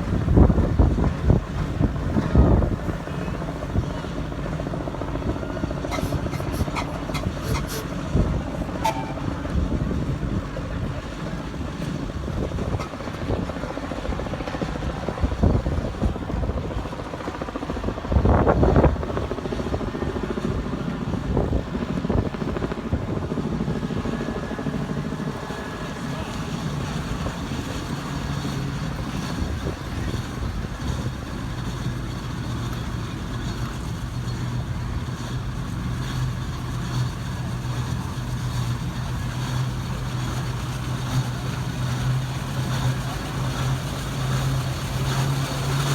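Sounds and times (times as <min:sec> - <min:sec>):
steam traction engine clatter: 0:00.0 - 0:45.9.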